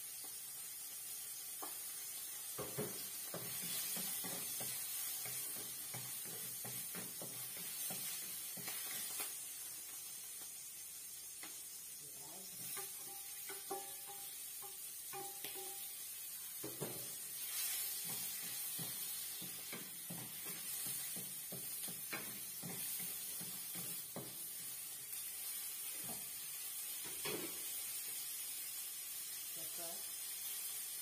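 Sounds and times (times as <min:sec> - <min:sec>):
food sizzling in a wok: 0:00.0 - 0:31.0
wooden spatula knocking and scraping: 0:02.5 - 0:09.2, 0:12.6 - 0:15.8, 0:16.6 - 0:24.5.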